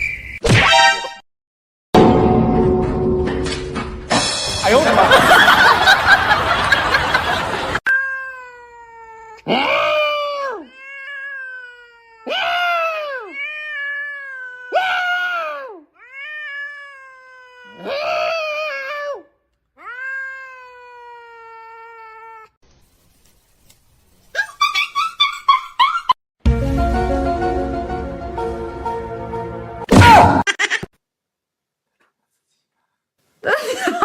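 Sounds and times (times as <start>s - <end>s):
cat yowling: 7.9s - 22.6s.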